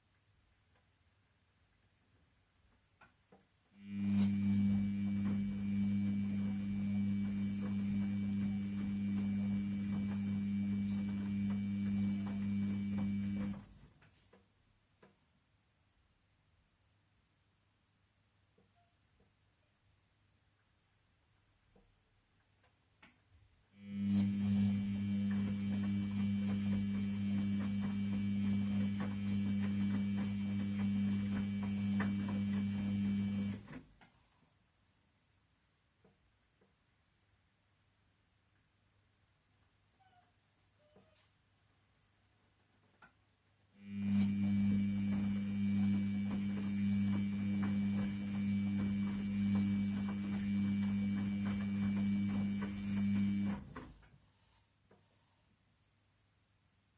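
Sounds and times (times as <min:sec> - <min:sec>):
washing machine motor humming: 0:03.8 - 0:13.8, 0:23.8 - 0:33.8, 0:43.8 - 0:54.0.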